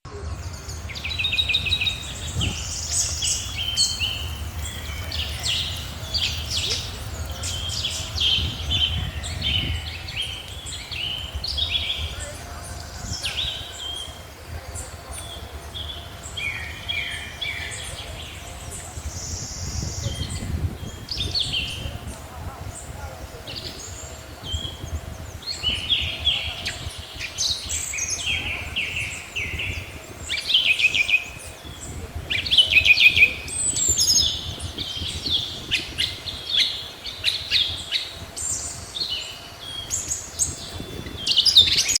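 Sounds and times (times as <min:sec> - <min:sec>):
low background rumble: 0:00.1 - 0:30.5
small birds chirping and trilling: 0:00.2 - 0:42.0.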